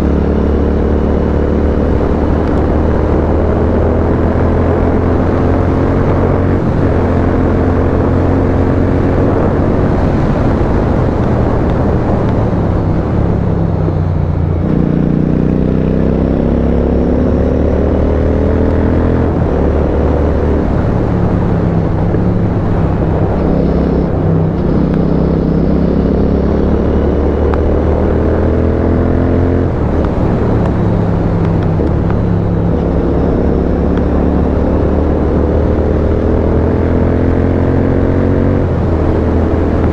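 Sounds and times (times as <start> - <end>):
motorcycle engine accelerating: 0.0 - 39.9
wind rushing: 17.8 - 39.9.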